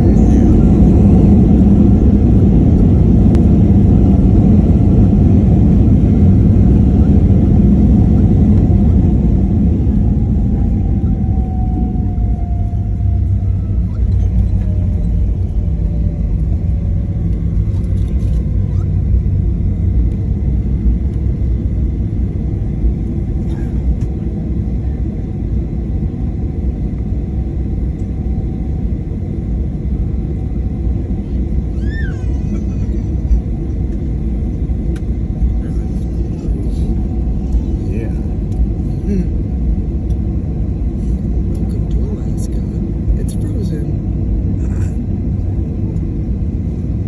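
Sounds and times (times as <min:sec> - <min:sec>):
aircraft rumble: 0:00.0 - 0:47.0.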